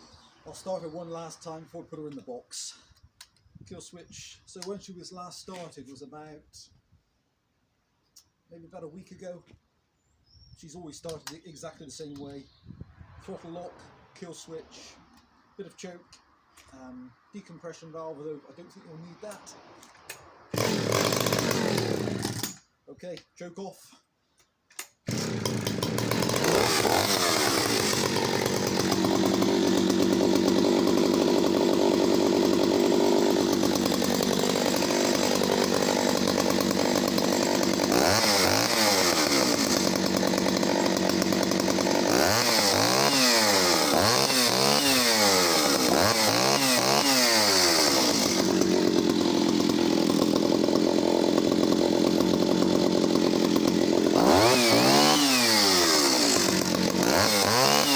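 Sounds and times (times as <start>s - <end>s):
chainsaw engine idling and revving: 18.4s - 22.6s, 25.1s - 57.9s.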